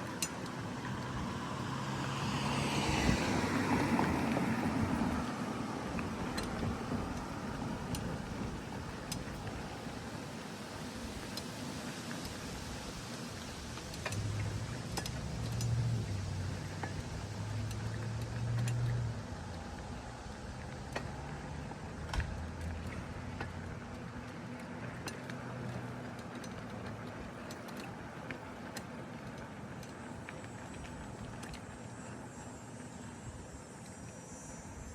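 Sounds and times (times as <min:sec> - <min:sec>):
bike clicks and rattles: 0:00.0 - 0:01.5, 0:05.9 - 0:10.1, 0:12.2 - 0:32.2
bicycle tyre and wind noise: 0:00.0 - 0:34.9.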